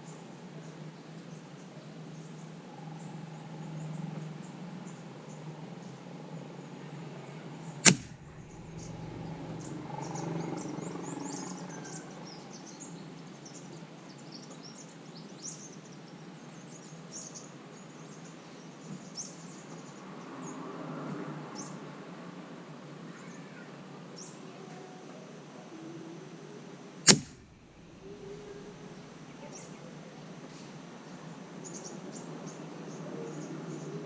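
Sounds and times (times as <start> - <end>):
outdoor background noise: 0.0 - 34.0
birds chirping: 7.7 - 15.9, 27.1 - 34.0
air rifle shot: 7.8 - 9.7, 27.1 - 28.9.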